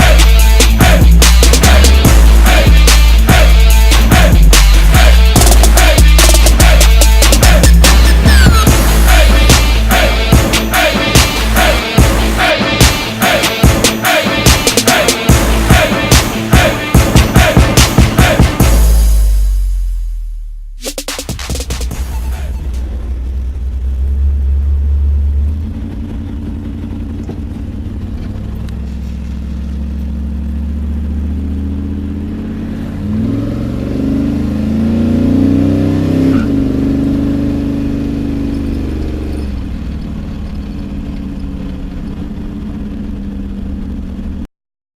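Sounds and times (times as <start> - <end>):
car engine idling and revving: 0.0 - 44.5.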